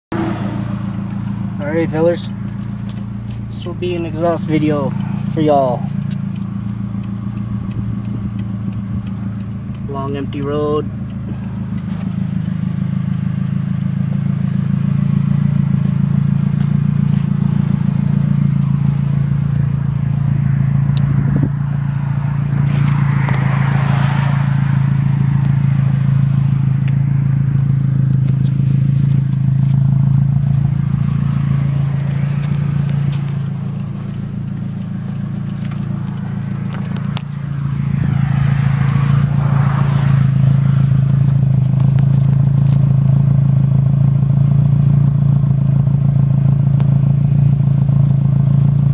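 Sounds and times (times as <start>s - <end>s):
car engine low drone: 0.0s - 48.9s.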